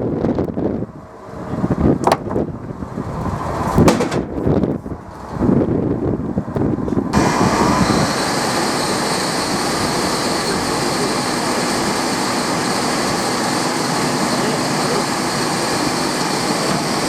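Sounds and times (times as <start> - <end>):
industrial machinery roar: 0.0 - 17.0
uneven rumbling: 0.1 - 8.2.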